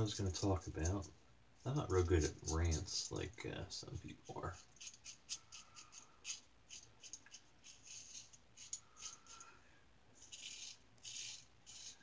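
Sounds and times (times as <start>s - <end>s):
razor scraping stubble: 4.3s - 9.5s, 10.2s - 12.0s.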